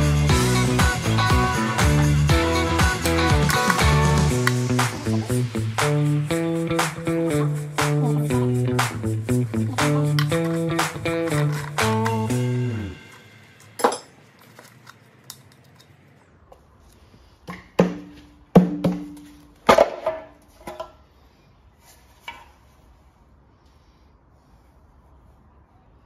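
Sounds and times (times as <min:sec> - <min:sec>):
guitar music: 0:00.0 - 0:13.3.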